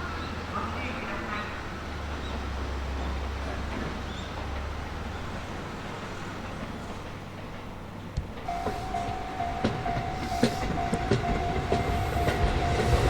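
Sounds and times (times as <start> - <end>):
train rumbling: 0.0 - 13.0
repeating beeping tone: 8.5 - 13.0.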